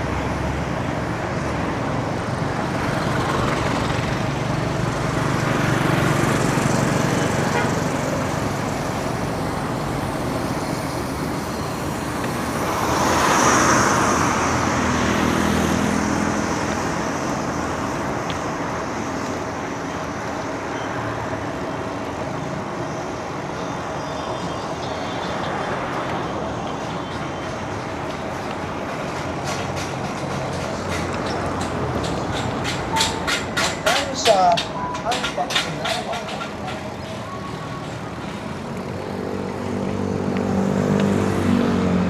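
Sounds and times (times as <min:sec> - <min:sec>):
vehicle passing close: 0:00.0 - 0:19.7, 0:35.0 - 0:42.0
road traffic: 0:00.0 - 0:42.0.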